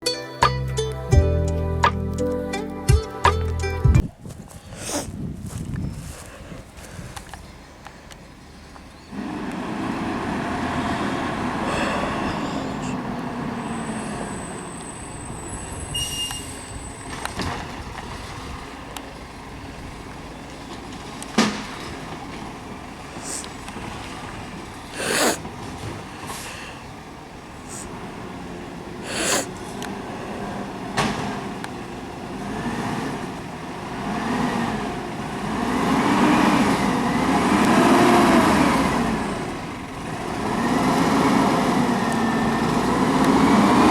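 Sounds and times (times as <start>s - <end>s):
garbage truck diesel engine: 3.7s - 43.9s
short hisses: 4.8s - 5.1s, 23.2s - 23.5s, 25.0s - 25.4s, 27.7s - 27.9s, 29.0s - 29.6s.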